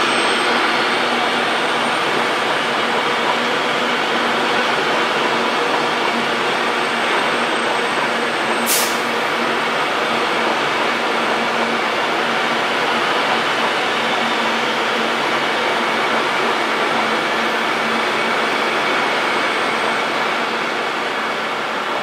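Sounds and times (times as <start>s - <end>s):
train running close by: 0.0s - 22.0s
brief high hiss: 8.6s - 9.2s.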